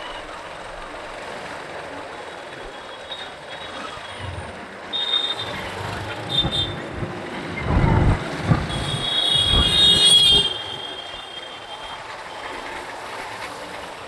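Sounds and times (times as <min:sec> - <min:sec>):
road traffic: 0:00.0 - 0:14.0
high-pitched squeal: 0:03.6 - 0:11.8
low rumbles: 0:04.1 - 0:10.8.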